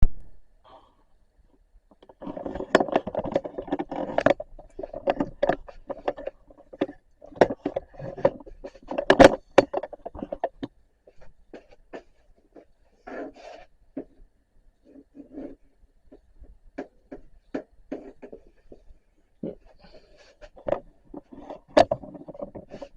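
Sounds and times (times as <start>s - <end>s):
objects scraping and knocking: 1.9s - 14.2s, 14.9s - 22.9s.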